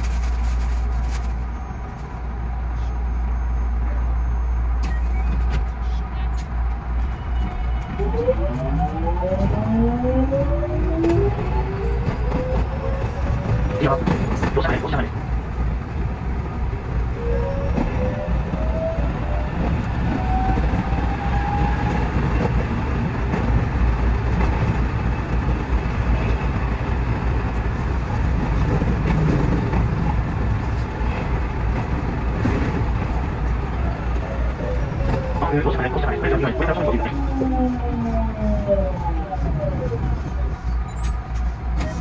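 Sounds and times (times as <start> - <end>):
wheels rumbling on rail: 0.0 - 42.0
rising tone: 7.9 - 12.3.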